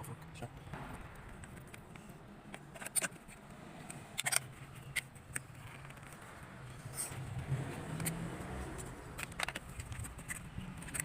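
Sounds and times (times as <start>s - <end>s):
sharp clicks and ticks: 0.7s - 6.5s.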